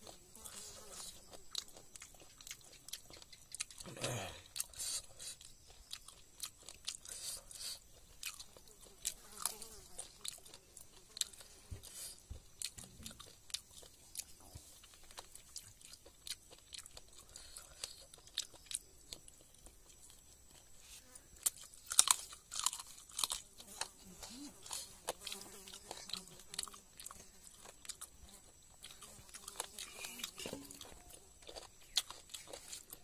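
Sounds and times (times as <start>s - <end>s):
person chewing and biting: 0.0s - 20.7s, 21.4s - 33.0s.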